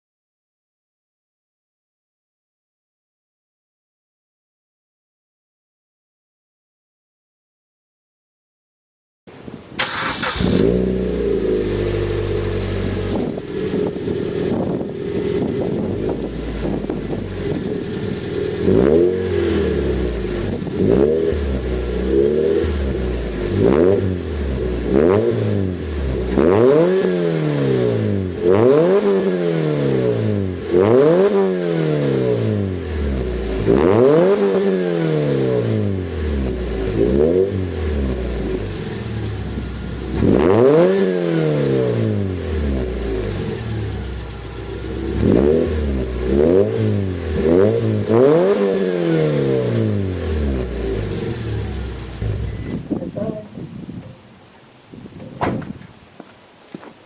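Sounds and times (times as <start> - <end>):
car engine revving: 9.8 - 53.0.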